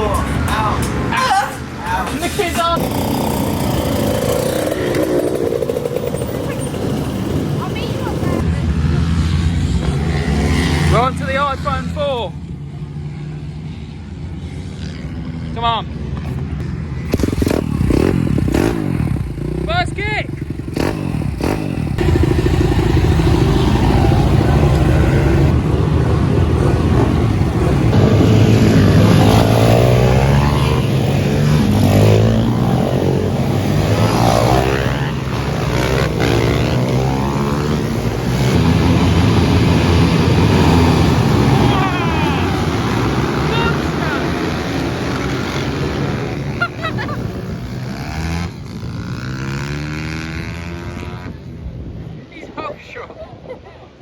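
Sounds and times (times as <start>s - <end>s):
pit bike engines revving: 0.0s - 52.7s.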